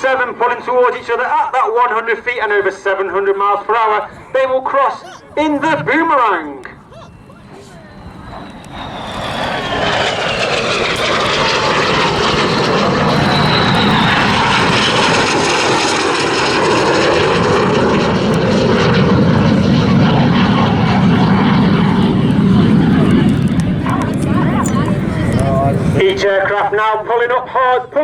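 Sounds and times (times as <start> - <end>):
jet engine whine: 0.0 - 27.6
jets passing low: 4.0 - 26.5
deep rumble: 7.5 - 26.1.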